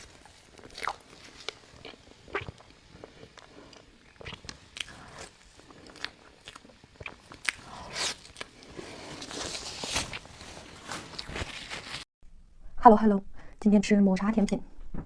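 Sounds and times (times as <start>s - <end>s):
chewing soft cake: 0.0s - 10.3s.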